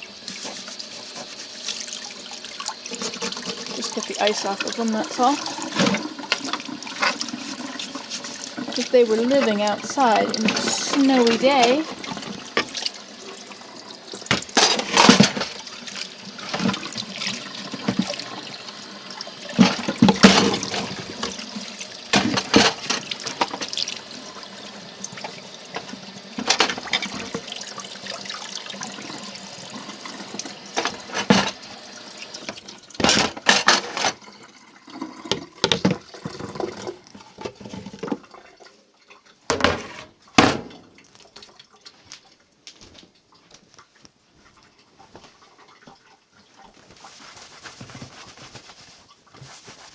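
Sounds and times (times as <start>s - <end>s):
water running: 0.0s - 49.9s
cupboard doors knocking and clattering: 39.5s - 40.8s.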